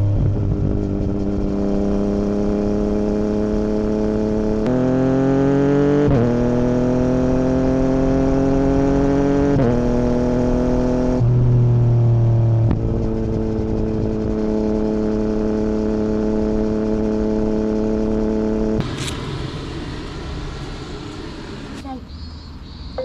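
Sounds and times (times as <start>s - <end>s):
motorcycle engine running: 0.0s - 22.5s.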